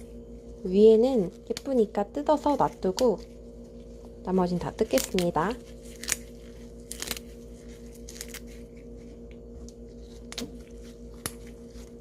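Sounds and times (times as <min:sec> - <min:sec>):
low hum: 0:00.0 - 0:12.0
leaves tearing by hand: 0:04.6 - 0:09.2, 0:09.9 - 0:12.0.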